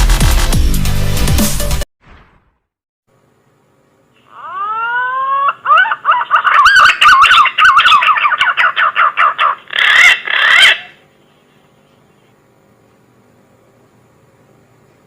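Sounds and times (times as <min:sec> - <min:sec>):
pigeon whistling call: 0:04.5 - 0:11.0.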